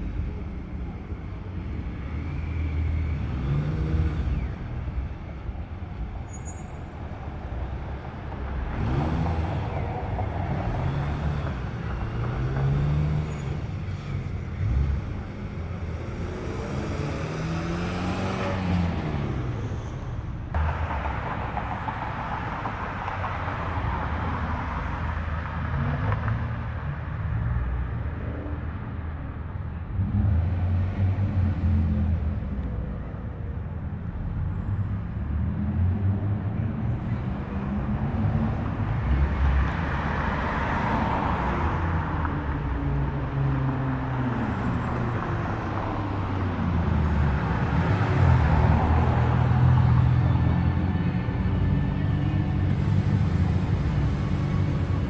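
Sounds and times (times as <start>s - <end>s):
cars driving slowly past: 0.0s - 55.0s.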